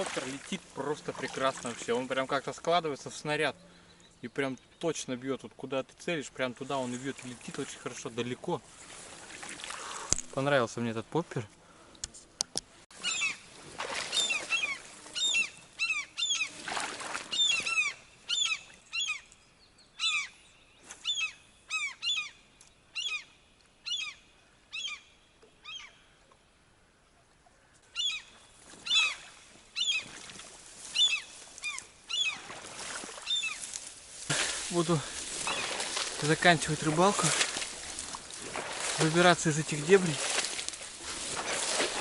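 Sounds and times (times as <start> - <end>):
bird calling: 12.9 - 26.3, 27.9 - 42.0.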